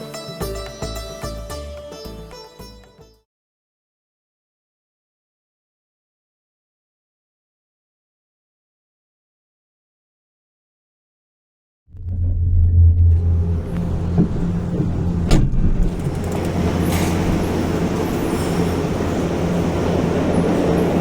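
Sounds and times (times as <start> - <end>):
vehicle hum and rumble: 11.9 - 21.0.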